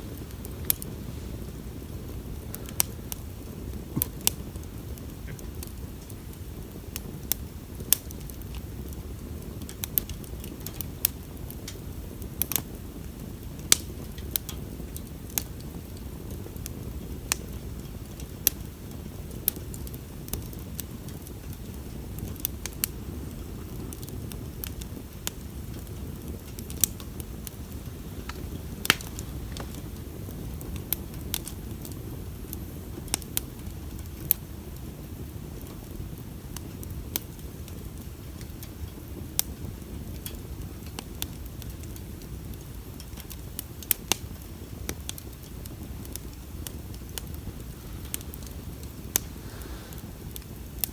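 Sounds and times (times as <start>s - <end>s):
bonfire crackling and popping: 0.0s - 50.9s
low rumble of fire: 0.0s - 50.9s.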